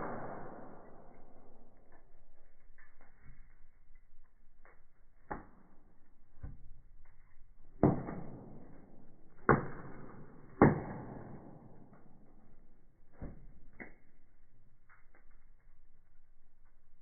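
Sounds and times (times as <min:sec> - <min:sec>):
loud sharp pops: 0:00.0 - 0:01.4, 0:07.8 - 0:08.7, 0:09.4 - 0:12.1
firewood crackling: 0:00.0 - 0:17.0.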